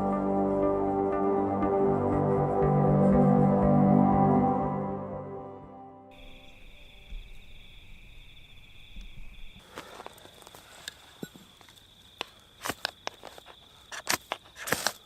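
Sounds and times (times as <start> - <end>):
insects trilling: 6.1 - 15.0.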